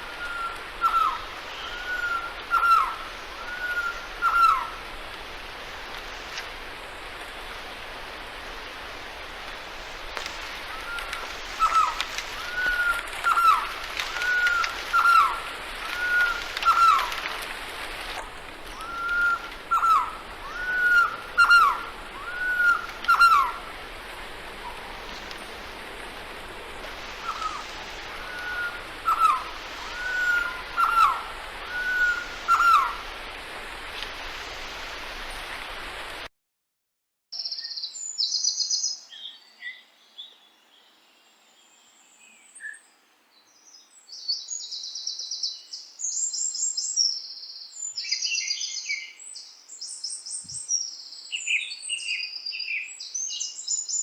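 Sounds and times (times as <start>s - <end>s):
background hiss: 0.0s - 36.3s, 37.4s - 54.0s
bird whistling: 18.8s - 23.5s, 28.2s - 32.9s.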